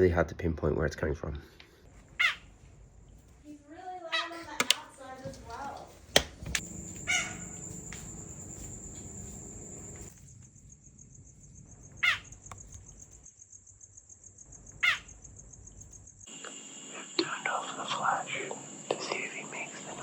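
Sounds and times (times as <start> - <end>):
sharp animal calls: 2.1 - 2.5, 6.7 - 8.5, 12.0 - 12.4, 14.8 - 15.2.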